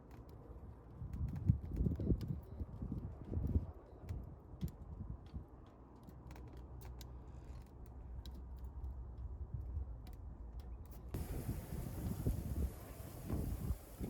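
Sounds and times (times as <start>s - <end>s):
hiss: 11.2s - 14.0s
low steady rumble: 11.2s - 14.0s.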